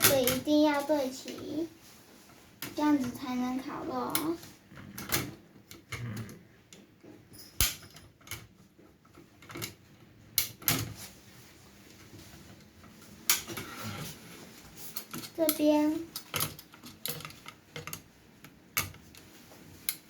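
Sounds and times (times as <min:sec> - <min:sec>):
grill parts clicking and knocking: 0:15.0 - 0:20.0.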